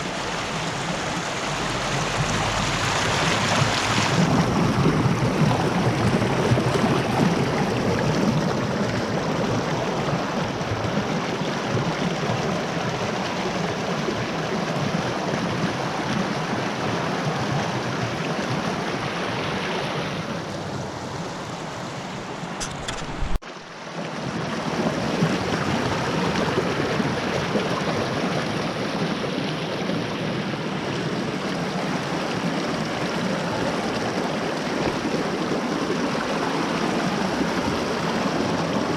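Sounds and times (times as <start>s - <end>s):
creek water rushing over rock: 0.0s - 38.9s
sharp click: 22.6s - 23.4s.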